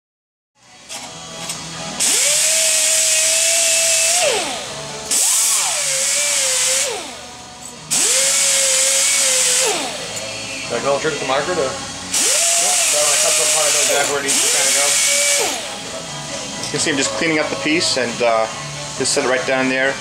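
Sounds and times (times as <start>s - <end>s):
air-powered cut-off tool whining: 0.9s - 16.3s.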